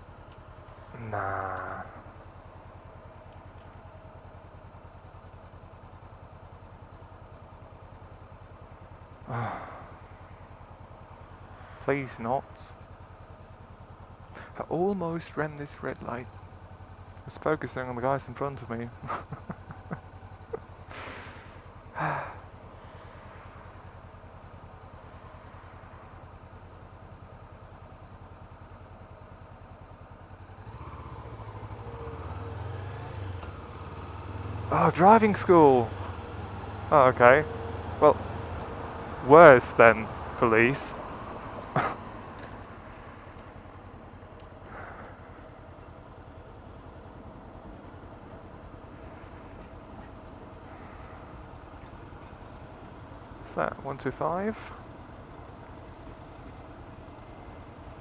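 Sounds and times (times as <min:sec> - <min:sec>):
motorcycle engine idling: 0:00.0 - 0:58.0
sigh-like vocal sound: 0:09.3 - 0:10.0, 0:21.0 - 0:22.4.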